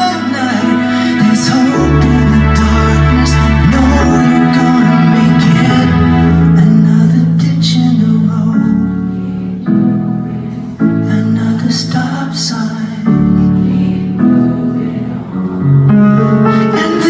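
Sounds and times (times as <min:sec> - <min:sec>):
person singing: 0:00.0 - 0:17.0
slow piano chords: 0:00.0 - 0:17.0.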